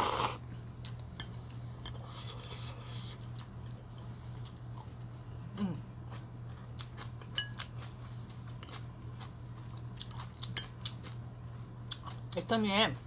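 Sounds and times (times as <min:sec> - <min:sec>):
steady low hum: 0:00.0 - 0:13.0
person humming mm: 0:05.5 - 0:05.9
chewing noodles: 0:06.1 - 0:11.2
chopsticks clinking against bowl: 0:07.3 - 0:07.8.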